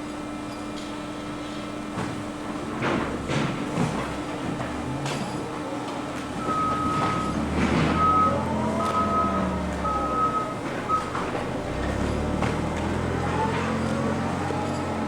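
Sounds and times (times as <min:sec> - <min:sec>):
machinery rumbling: 0:02.5 - 0:15.0
backup alarm beeping: 0:06.4 - 0:11.3.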